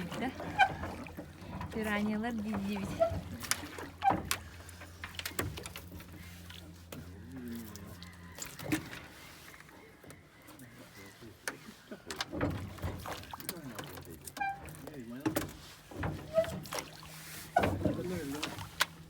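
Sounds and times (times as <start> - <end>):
low motor hum: 0.0 - 9.2.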